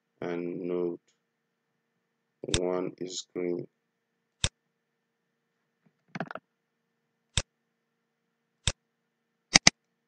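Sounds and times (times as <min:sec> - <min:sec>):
computer mouse clicking: 0:09.5 - 0:09.8.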